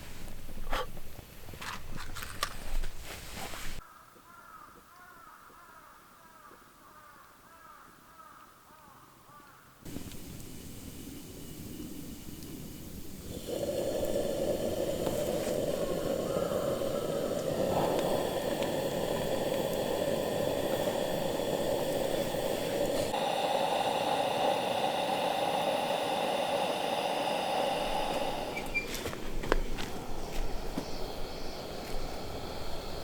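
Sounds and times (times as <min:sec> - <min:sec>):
food bubbling and hissing: 0:09.9 - 0:33.0.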